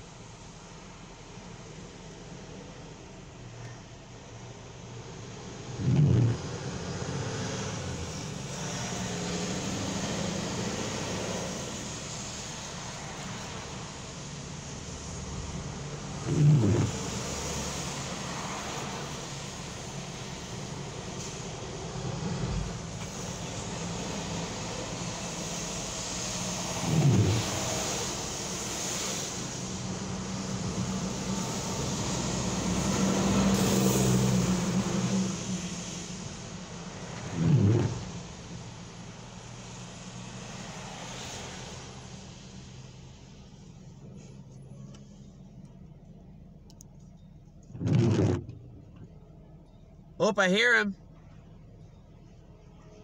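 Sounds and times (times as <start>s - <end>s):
vehicle engine hum: 0.0s - 53.0s
tyres hissing on wet pavement: 4.2s - 45.4s
car passing close: 5.4s - 45.2s.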